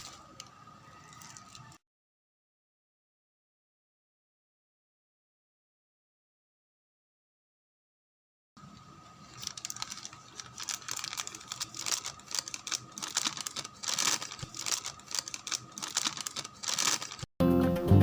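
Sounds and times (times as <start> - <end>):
packaging crinkling: 0.0 - 1.8, 9.2 - 17.3.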